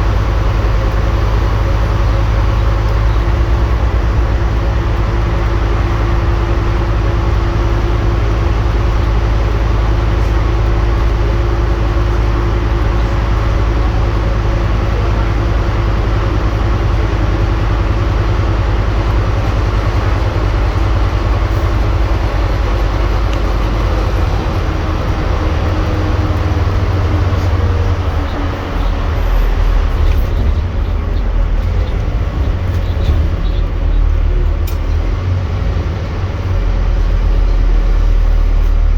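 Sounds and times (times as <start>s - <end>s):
bus engine drone: 0.0s - 38.9s
road noise: 0.0s - 38.9s.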